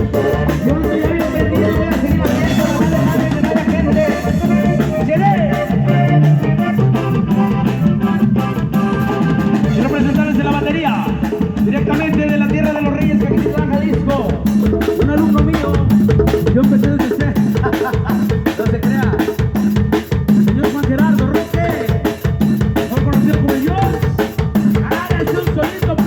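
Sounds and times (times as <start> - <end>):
pitched instruments: 0.0 - 18.5
drums and percussion: 0.0 - 26.0.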